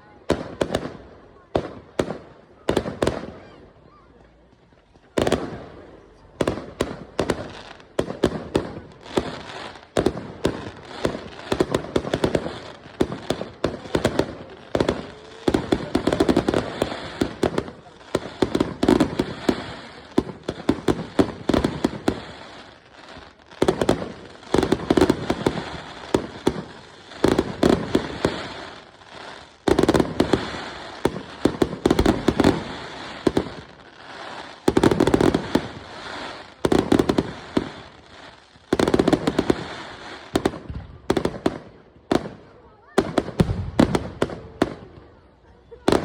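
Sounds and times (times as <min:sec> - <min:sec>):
fireworks crackling: 0:00.0 - 0:46.0
fireworks bangs: 0:00.2 - 0:03.6, 0:04.4 - 0:46.0.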